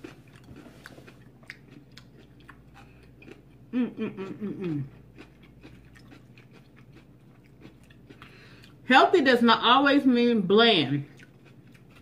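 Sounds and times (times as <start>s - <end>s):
person chewing crunchy food: 0.0s - 8.8s, 11.1s - 12.0s
person humming: 3.7s - 4.9s.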